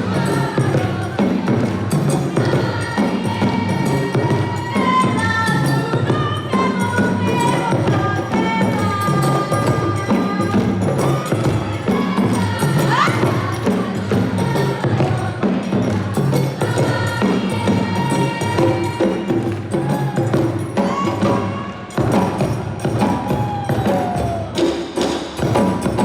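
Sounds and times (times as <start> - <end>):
drums and hand percussion: 0.0 - 26.0.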